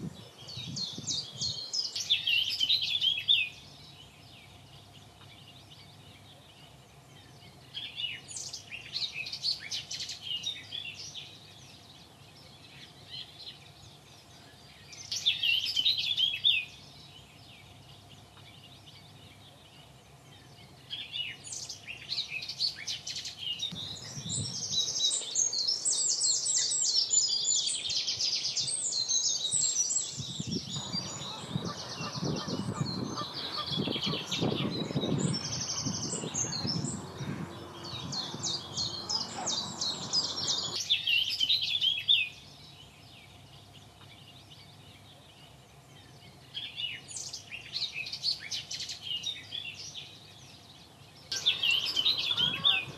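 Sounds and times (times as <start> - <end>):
birds chirping song: 0.0 - 52.9
rough low bird calls: 28.7 - 40.8, 51.3 - 52.9.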